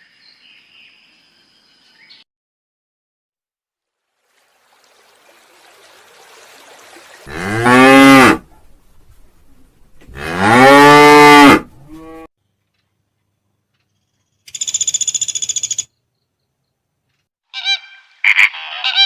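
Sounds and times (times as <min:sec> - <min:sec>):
cow mooing: 0:07.3 - 0:08.4, 0:10.1 - 0:12.3.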